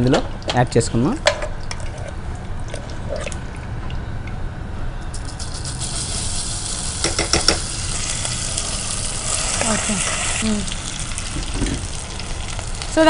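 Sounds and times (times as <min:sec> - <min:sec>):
low steady hum: 0:00.0 - 0:13.0
frying sizzle in a pan: 0:05.2 - 0:13.0.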